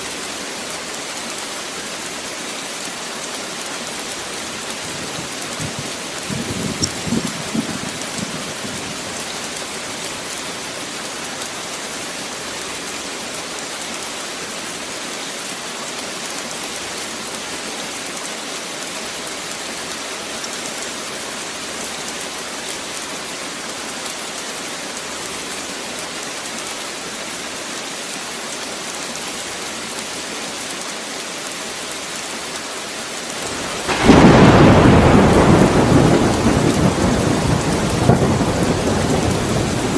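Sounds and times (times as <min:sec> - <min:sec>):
steady rain: 0:00.0 - 0:39.9
thunder rumbling: 0:05.0 - 0:09.3, 0:33.5 - 0:39.9.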